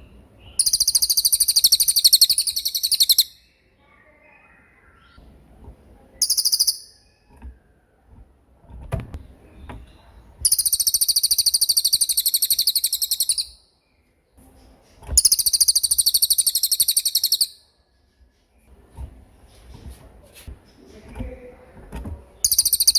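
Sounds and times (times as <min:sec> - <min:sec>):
songbird rattling trills: 0:00.6 - 0:03.4, 0:06.2 - 0:07.2, 0:10.4 - 0:13.6, 0:15.2 - 0:17.6, 0:22.4 - 0:22.9.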